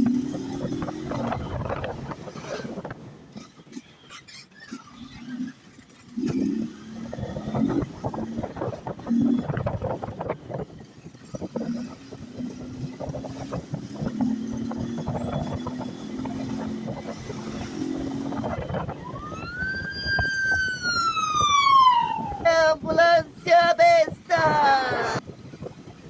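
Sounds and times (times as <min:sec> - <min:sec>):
wind noise: 0:00.0 - 0:03.4, 0:07.0 - 0:26.0
motorcycle engine running: 0:00.0 - 0:21.2
siren-like wail: 0:18.3 - 0:23.5.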